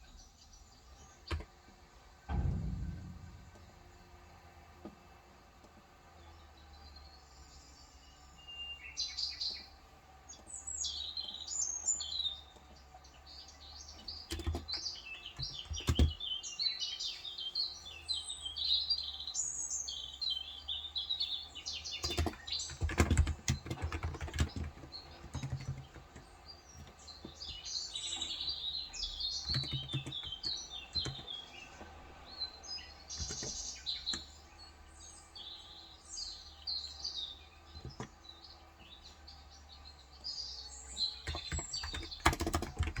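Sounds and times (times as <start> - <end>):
small birds chirping: 6.0 - 43.0
typing on keyboard: 14.3 - 14.8, 15.4 - 16.2, 22.0 - 27.6, 29.4 - 31.4, 33.2 - 34.2, 37.8 - 38.1, 41.2 - 43.0.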